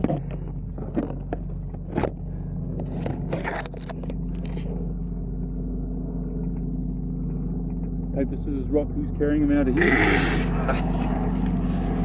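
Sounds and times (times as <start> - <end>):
steady low hum: 0.0 - 12.0
scrapes and rustles: 2.8 - 4.9, 10.4 - 12.0.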